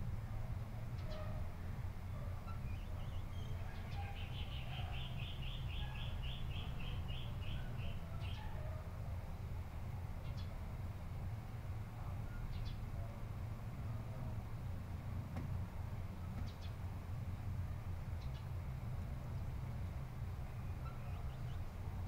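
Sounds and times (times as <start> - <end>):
bird chirping: 2.4 - 8.6, 20.5 - 21.7.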